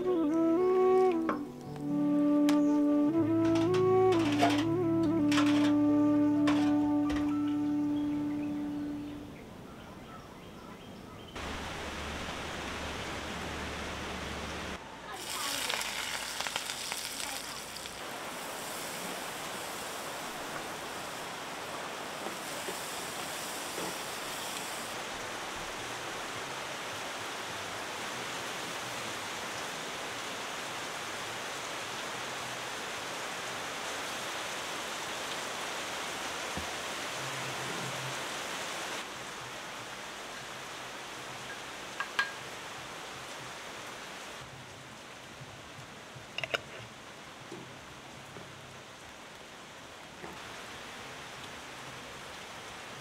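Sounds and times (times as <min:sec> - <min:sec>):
onions sizzling in oil: 0:14.4 - 0:25.1.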